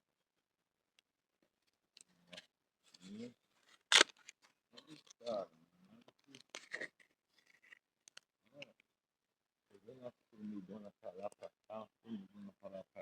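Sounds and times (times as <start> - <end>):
person muttering: 10.0 - 13.0.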